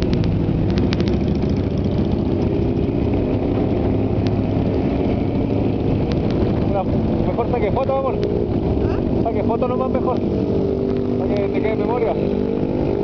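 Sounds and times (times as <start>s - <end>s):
sharp clicks: 0.0s - 1.3s, 6.0s - 6.5s
motorcycle engines idling: 0.0s - 13.0s.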